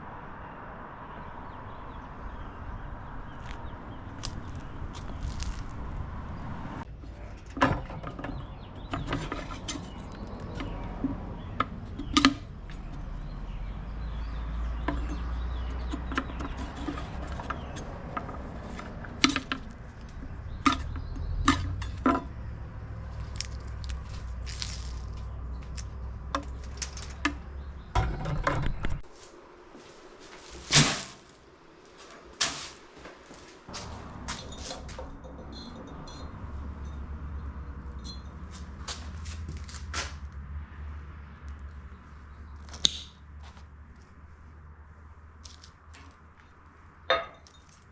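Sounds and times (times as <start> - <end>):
knocks and clinks of hard objects: 14.8 - 22.5, 33.7 - 40.1, 47.1 - 47.9.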